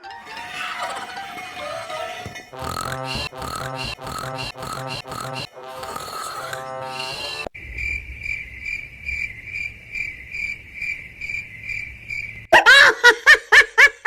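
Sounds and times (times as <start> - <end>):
cricket chirping: 3.4 - 12.5.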